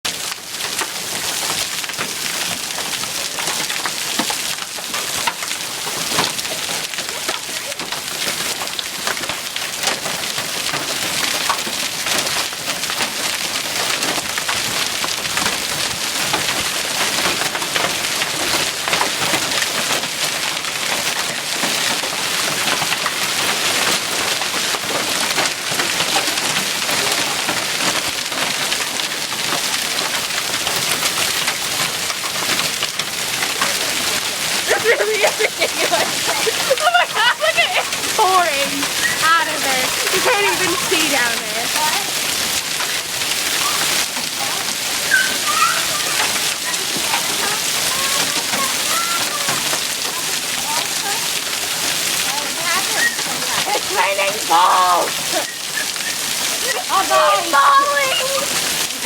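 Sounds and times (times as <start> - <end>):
hail and heavy rain pelting: 0.0 - 59.0.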